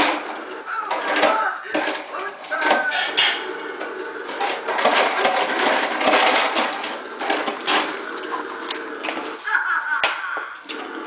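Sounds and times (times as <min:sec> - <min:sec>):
toy lawn mower rattling: 0:04.2 - 0:09.5.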